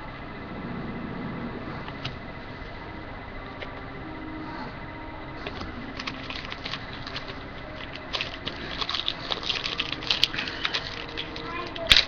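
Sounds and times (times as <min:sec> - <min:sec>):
cards and packaging rustling: 0:05.4 - 0:12.0.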